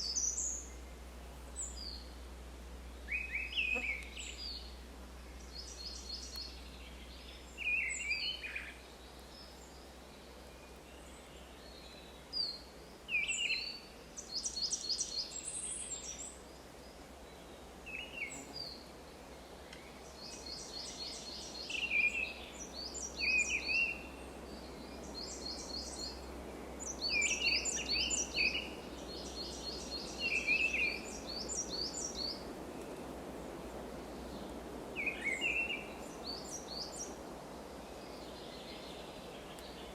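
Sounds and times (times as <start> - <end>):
steady low hum: 0.0 - 7.6
wild birds singing and chirping: 0.0 - 39.9.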